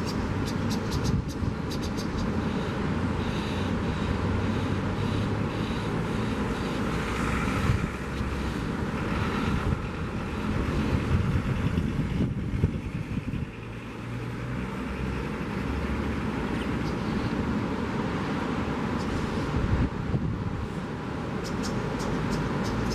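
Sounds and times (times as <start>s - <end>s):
wind buffeting microphone: 0.0s - 3.1s, 6.4s - 15.6s, 18.7s - 22.9s
vehicle traffic passing: 0.0s - 22.9s.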